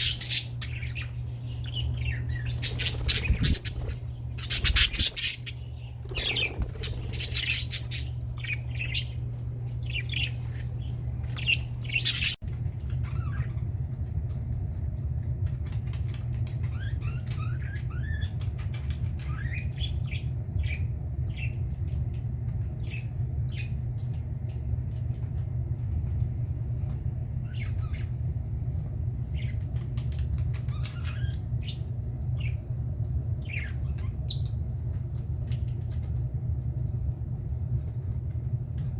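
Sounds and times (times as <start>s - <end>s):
budgerigars chattering: 0.0s - 9.2s, 9.8s - 12.4s
steady low hum: 0.0s - 38.9s.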